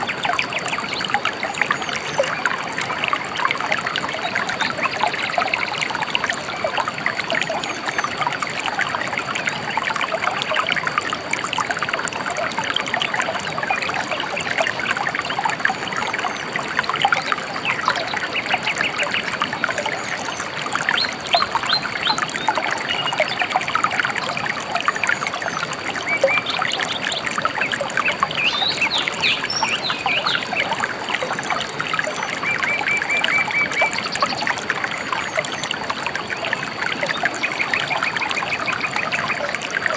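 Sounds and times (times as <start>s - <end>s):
river trickling and babbling: 0.0s - 39.9s
small birds chirping: 25.2s - 39.5s.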